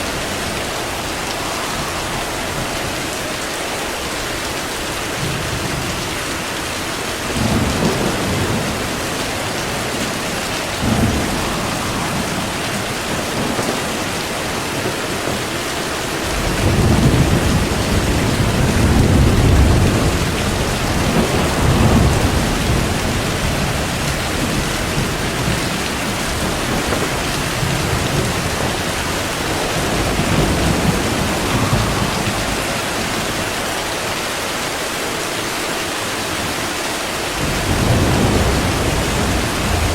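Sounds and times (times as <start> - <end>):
rolling thunder: 0.0 - 34.7, 37.2 - 39.9
heavy rain: 0.0 - 39.9.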